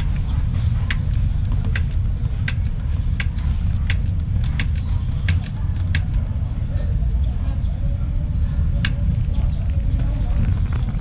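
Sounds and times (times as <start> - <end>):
low rumble: 0.0 - 11.0
grease gun pumping clicks: 0.9 - 6.3.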